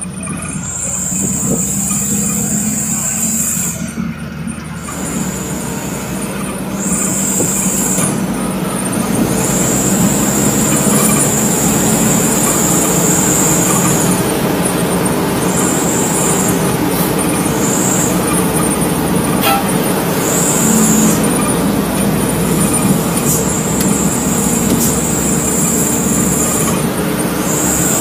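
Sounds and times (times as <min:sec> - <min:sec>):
truck engine and road noise: 0:00.0 - 0:28.0
high thin whine: 0:09.3 - 0:28.0.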